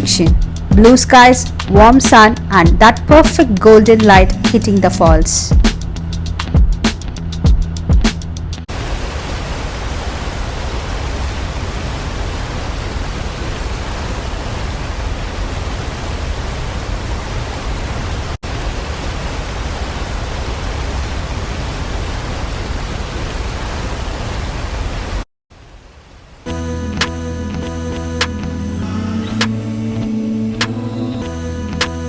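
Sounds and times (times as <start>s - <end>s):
waterfall rushing: 8.7s - 22.5s, 28.4s - 31.4s.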